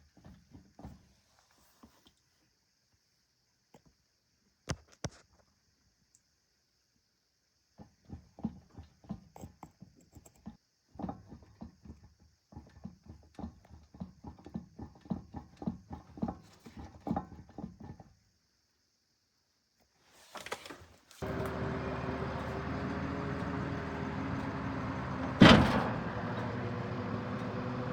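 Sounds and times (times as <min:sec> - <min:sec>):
loud thump: 0:21.2 - 0:27.2
car engine droning: 0:21.2 - 0:27.9.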